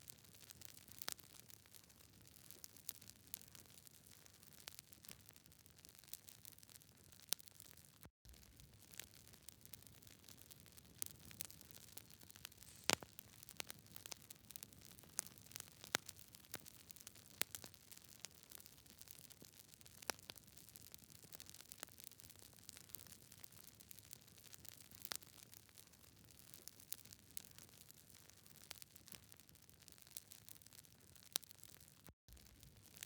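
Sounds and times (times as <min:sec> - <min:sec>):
wood fire crackling: 0:08.4 - 0:33.0
faint low hiss: 0:12.6 - 0:13.1.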